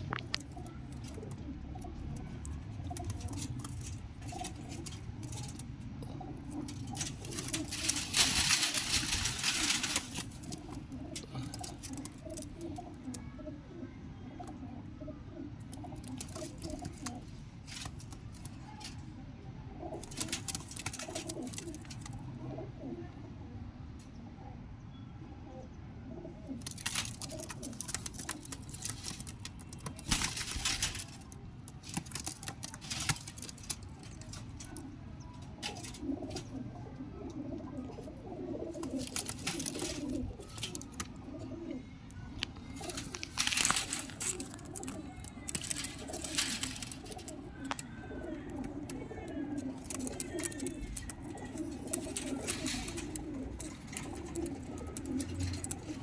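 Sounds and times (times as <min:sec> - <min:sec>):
pigeons cooing: 0:00.0 - 0:24.7, 0:25.5 - 0:56.0
loud rustling: 0:06.3 - 0:12.6, 0:26.7 - 0:34.9, 0:42.7 - 0:56.0.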